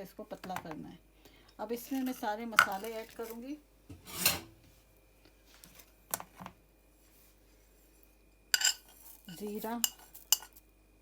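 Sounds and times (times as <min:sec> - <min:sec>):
kitchen utensils clinking on bowls: 0:08.5 - 0:10.6.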